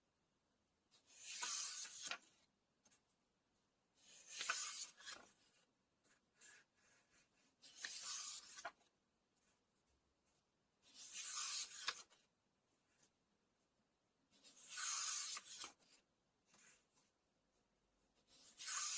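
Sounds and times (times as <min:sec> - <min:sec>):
book pages turning: 0:01.1 - 0:02.4, 0:04.0 - 0:05.6, 0:07.6 - 0:08.9, 0:10.9 - 0:12.2, 0:14.4 - 0:17.0, 0:18.3 - 0:18.9.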